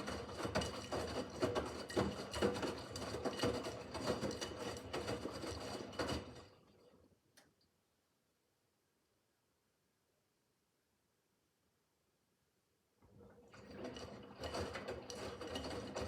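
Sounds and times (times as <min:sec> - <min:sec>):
faint click: 0:07.3 - 0:07.7.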